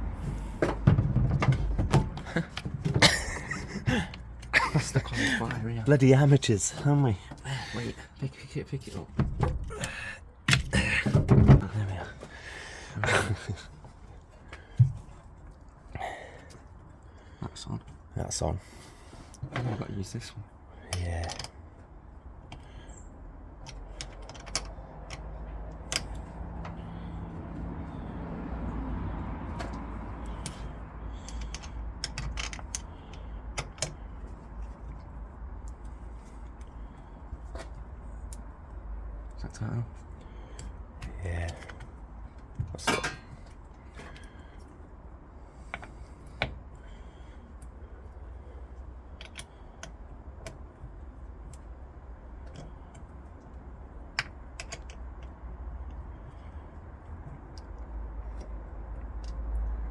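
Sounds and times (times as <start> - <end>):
low steady rumble: 0.0 - 17.5
hand tools clicking and tapping: 23.6 - 27.7, 29.5 - 36.8, 40.0 - 44.7, 49.1 - 51.7, 52.4 - 59.6.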